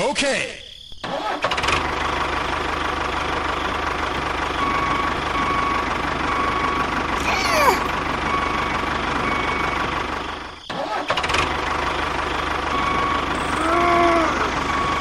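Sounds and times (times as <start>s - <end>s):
small engine running: 1.4s - 15.0s.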